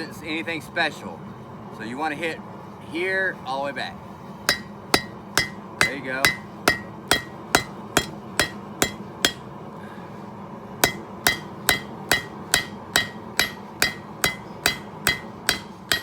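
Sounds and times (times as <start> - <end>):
hammer striking steel on anvil: 4.5 - 9.6, 10.8 - 16.0.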